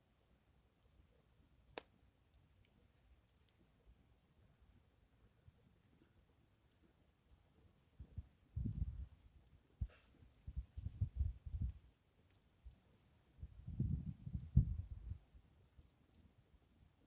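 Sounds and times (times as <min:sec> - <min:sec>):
wind buffeting microphone: 0:08.0 - 0:09.1, 0:10.4 - 0:11.8, 0:13.4 - 0:15.2.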